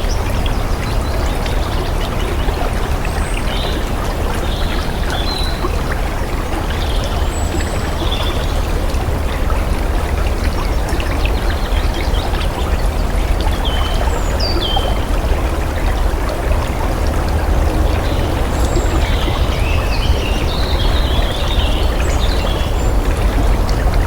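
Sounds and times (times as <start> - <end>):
water flowing: 0.0 - 24.0.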